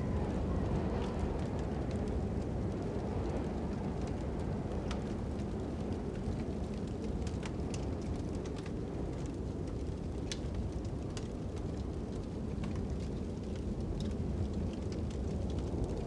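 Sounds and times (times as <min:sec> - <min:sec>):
low rushing wind: 0:00.0 - 0:06.8
crackling wood fire: 0:00.0 - 0:16.0.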